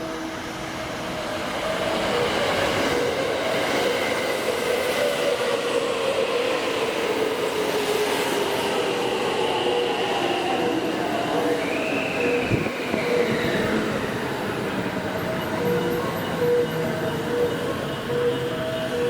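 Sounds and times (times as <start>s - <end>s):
train wheels rumbling on rail: 0.0s - 19.0s
high squeal: 8.1s - 19.0s.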